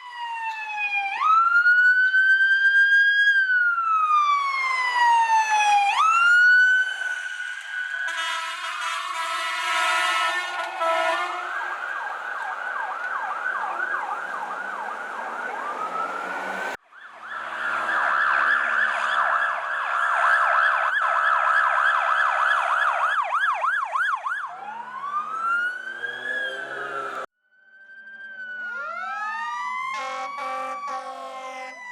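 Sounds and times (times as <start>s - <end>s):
emergency siren yelping and wailing: 0.0s - 31.9s
long horn blast: 8.0s - 12.0s, 29.9s - 31.8s.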